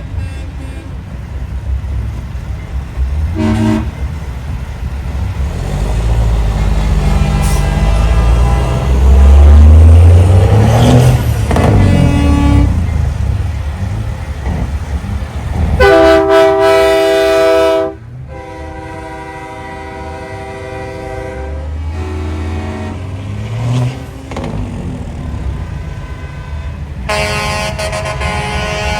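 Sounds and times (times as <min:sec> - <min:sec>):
truck air horns: 0:00.0 - 0:01.2, 0:03.3 - 0:04.2, 0:06.3 - 0:12.9, 0:15.6 - 0:24.6, 0:25.3 - 0:28.9
diesel engines rumbling: 0:00.0 - 0:28.9.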